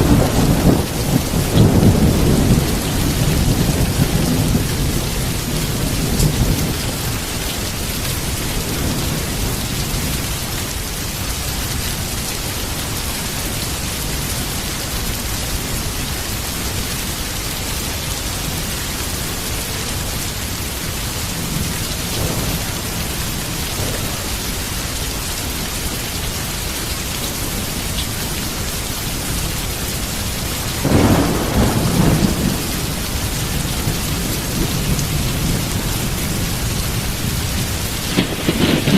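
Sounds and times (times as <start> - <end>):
thunder rumbling: 0.0 - 11.2, 20.5 - 25.6, 28.9 - 38.9
heavy rain falling: 0.0 - 38.9.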